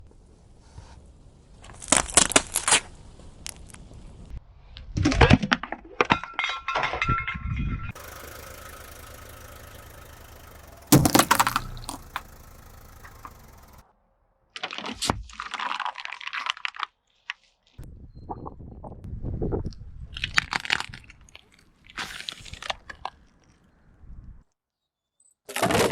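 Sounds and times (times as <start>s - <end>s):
car engine running: 7.9s - 13.8s
tyres crushing objects: 8.0s - 12.4s.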